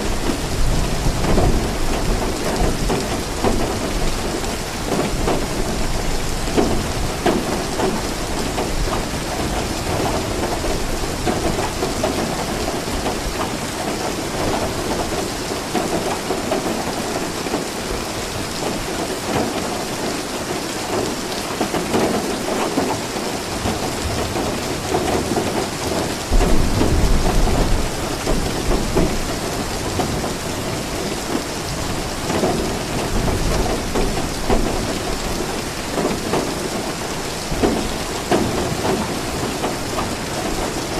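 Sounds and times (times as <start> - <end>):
rain hissing: 0.0 - 40.9
thunder rumble: 23.6 - 30.7.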